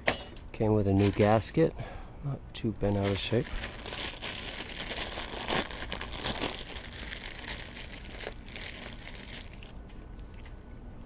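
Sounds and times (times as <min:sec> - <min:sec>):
packaging crinkling: 0:01.0 - 0:01.5, 0:02.8 - 0:10.5.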